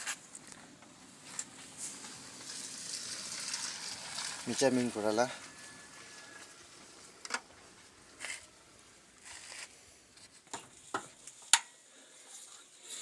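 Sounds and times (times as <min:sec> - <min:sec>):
scraping rustles of parts: 0:01.2 - 0:08.6, 0:09.2 - 0:11.5.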